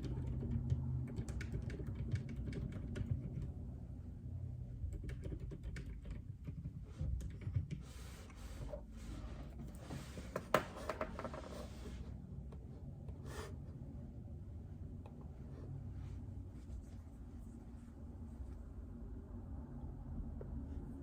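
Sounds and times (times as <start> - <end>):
rustling at desk: 6.6 - 13.9, 15.2 - 18.9.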